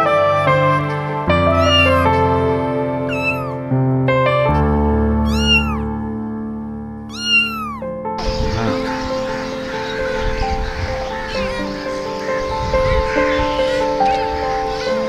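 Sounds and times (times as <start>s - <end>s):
keyboard chords music: 0.0s - 15.0s
cat meowing: 1.4s - 2.3s, 3.0s - 3.6s, 5.2s - 6.0s, 7.1s - 7.9s, 11.1s - 12.0s.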